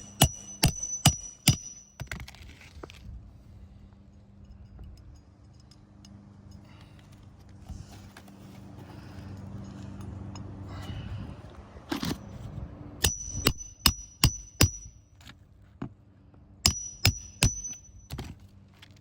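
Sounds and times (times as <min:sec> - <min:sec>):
scraping and ticking of shingle: 0:00.3 - 0:03.1.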